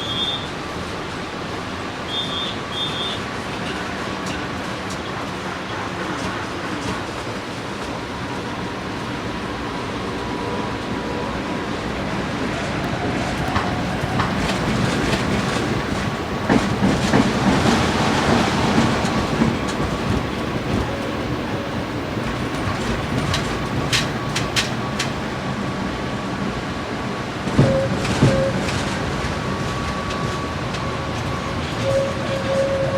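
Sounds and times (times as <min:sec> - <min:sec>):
tram rumbling on rails: 0:00.0 - 0:32.9
wheel-on-rail clicks: 0:13.5 - 0:25.4.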